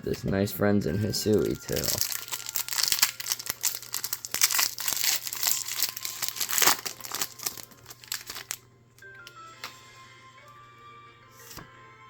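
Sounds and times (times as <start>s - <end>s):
foil wrappers crinkling and tearing: 1.2s - 8.6s.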